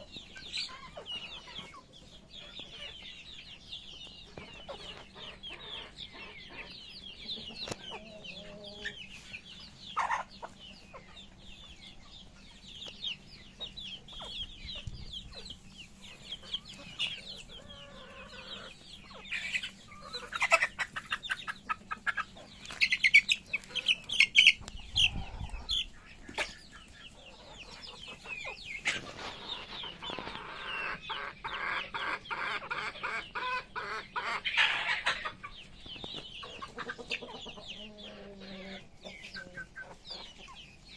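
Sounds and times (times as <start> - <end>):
chickens clucking and calling: 0.0 - 40.9.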